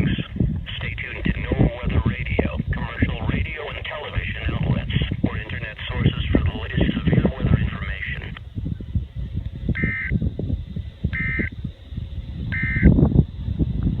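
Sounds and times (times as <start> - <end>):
synthesized announcer voice: 0.0 - 8.4
shrill buzzing data bursts: 9.7 - 13.2.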